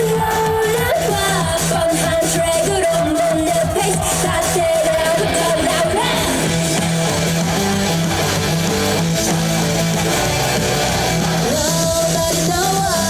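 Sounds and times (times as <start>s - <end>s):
steady bass line: 0.0s - 13.0s
strummed guitar: 5.1s - 12.3s.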